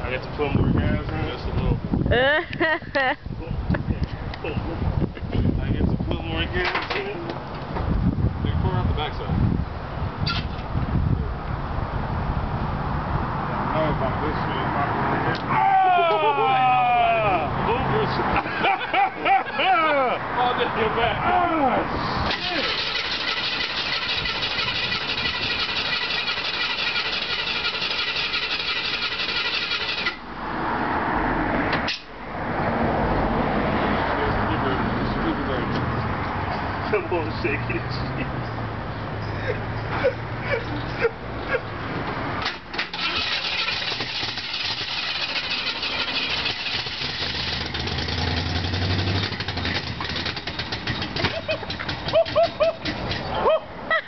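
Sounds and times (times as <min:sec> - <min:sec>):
people laughing: 0:02.2 - 0:03.2, 0:16.0 - 0:20.4, 0:36.9 - 0:38.4, 0:39.3 - 0:41.7, 0:51.2 - 0:54.0
engine turning over: 0:22.2 - 0:30.2, 0:42.4 - 0:53.4.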